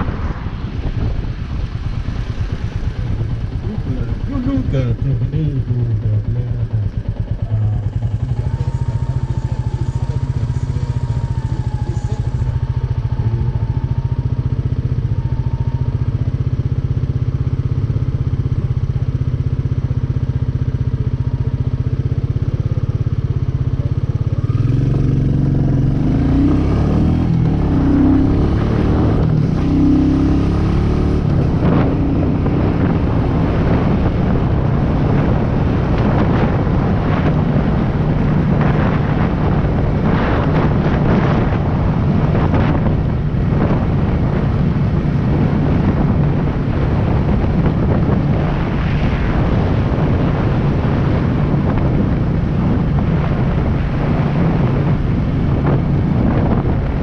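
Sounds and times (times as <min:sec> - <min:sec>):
wind rush: 0:00.0 - 0:57.0
motorcycle engine running: 0:00.8 - 0:57.0.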